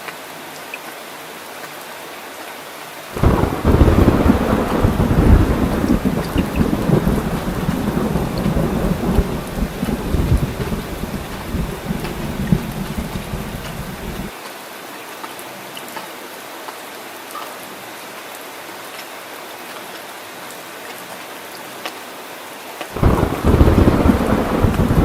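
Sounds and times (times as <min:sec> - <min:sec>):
steady rain falling: 0:00.0 - 0:25.0
drops ticking: 0:03.2 - 0:14.3
thunder rumbling: 0:03.2 - 0:14.3, 0:23.0 - 0:25.0.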